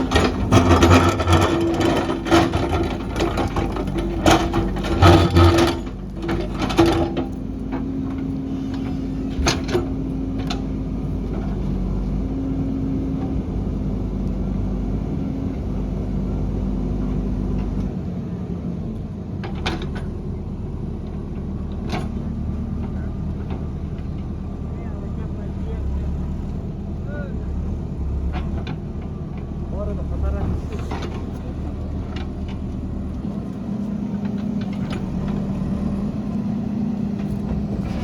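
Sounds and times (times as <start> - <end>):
clanking and knocks: 0.0 - 11.6, 37.2 - 38.0
diesel engine running: 0.0 - 38.0.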